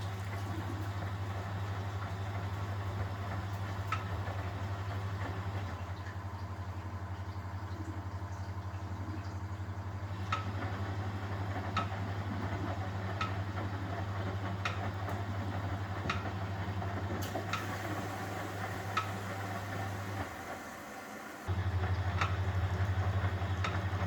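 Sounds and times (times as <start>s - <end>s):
washing machine humming: 0.0s - 24.0s
washing machine clicks: 11.3s - 24.0s.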